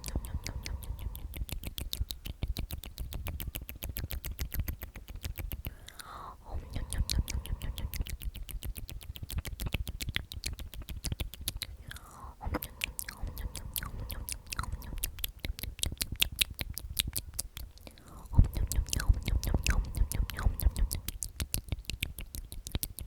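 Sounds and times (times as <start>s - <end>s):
person whispering: 0.0s - 2.1s, 5.6s - 8.3s, 11.7s - 15.6s, 17.8s - 21.4s
wet lip and tongue clicks: 0.0s - 23.0s.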